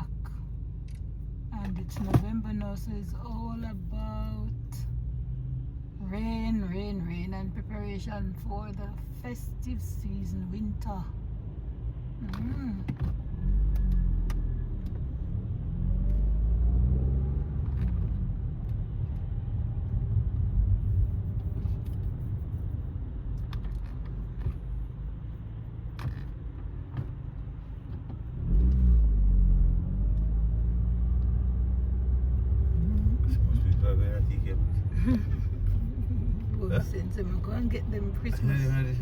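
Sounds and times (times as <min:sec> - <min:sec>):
road rumble: 0:00.0 - 0:39.0
car engine accelerating: 0:11.8 - 0:22.6, 0:23.2 - 0:39.0.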